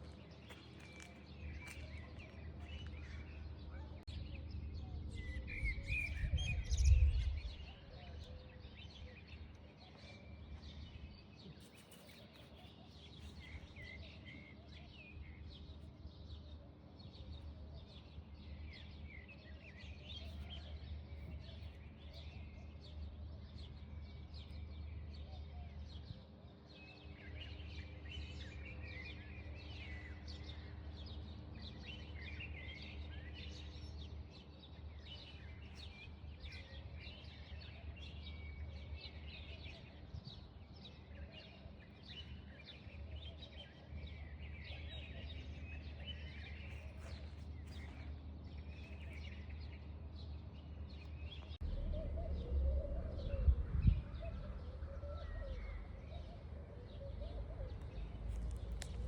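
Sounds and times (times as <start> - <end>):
small birds chirping: 27.0 - 59.0
steady low hum: 51.0 - 59.0.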